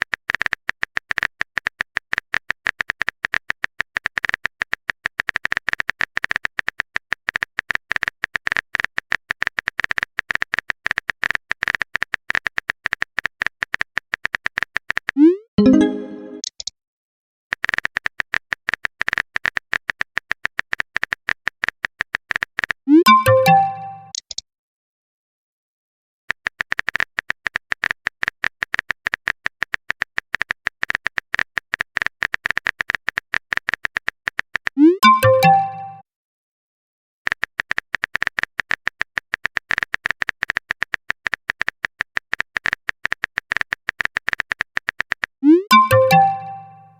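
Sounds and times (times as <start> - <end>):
keyboard typing clicks: 0.0 - 16.7, 17.5 - 24.4, 26.3 - 36.0, 37.3 - 46.9
short alert tone: 15.2 - 16.4, 22.9 - 24.1, 34.8 - 36.0, 45.4 - 46.9.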